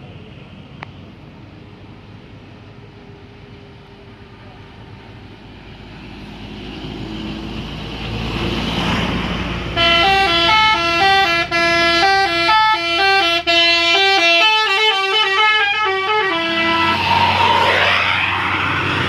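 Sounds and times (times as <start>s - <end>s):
bus engine running: 0.0s - 19.0s
multi-tone bus horn melody: 9.7s - 17.5s.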